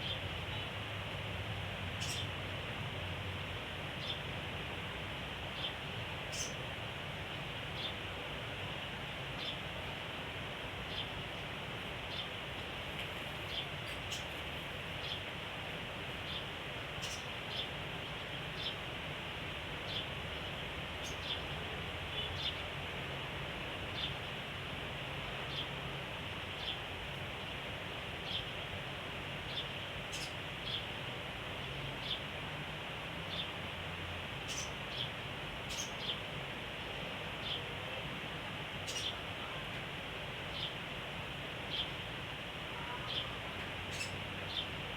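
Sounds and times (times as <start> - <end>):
background hiss: 0.0 - 44.9
songbird chirping: 16.2 - 18.8, 43.0 - 44.8.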